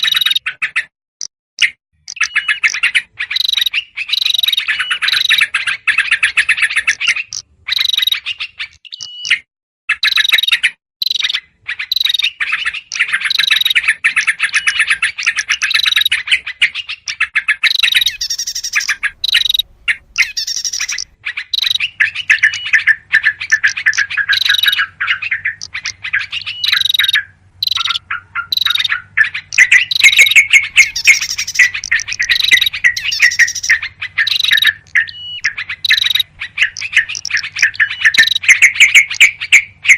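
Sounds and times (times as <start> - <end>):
small songbirds: 0.0 - 39.9
bulbuls chattering calls: 11.8 - 39.9.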